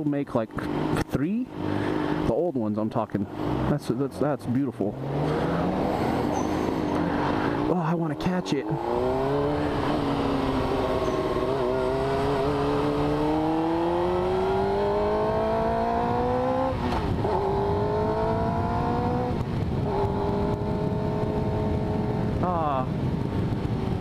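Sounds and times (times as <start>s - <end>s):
motorcycle engine accelerating: 3.3s - 24.0s.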